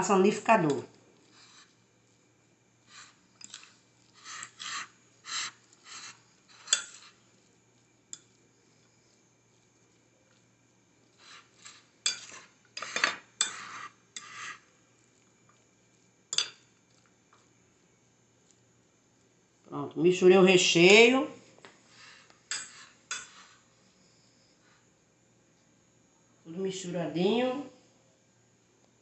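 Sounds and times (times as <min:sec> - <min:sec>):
spoon scraping a bowl: 0:01.2 - 0:01.9, 0:02.8 - 0:10.4, 0:11.0 - 0:15.6, 0:21.9 - 0:24.8.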